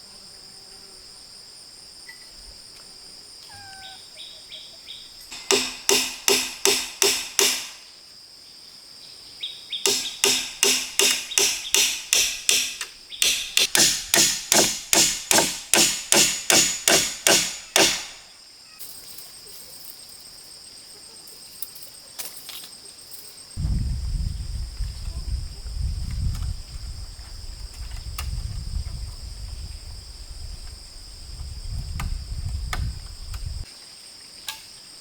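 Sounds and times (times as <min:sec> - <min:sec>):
insects buzzing: 0:00.0 - 0:35.0
hammer blows: 0:05.3 - 0:07.9, 0:09.9 - 0:18.3.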